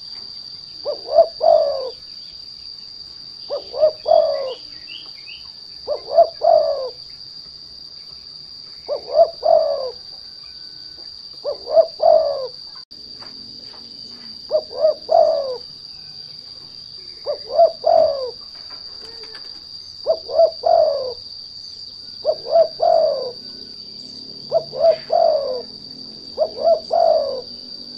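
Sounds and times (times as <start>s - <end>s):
steady high-pitched whine: 0.0s - 27.9s
dove cooing: 0.8s - 2.0s, 3.5s - 4.7s, 5.8s - 7.0s, 8.8s - 12.8s, 14.2s - 16.2s, 16.9s - 21.3s, 22.1s - 27.9s.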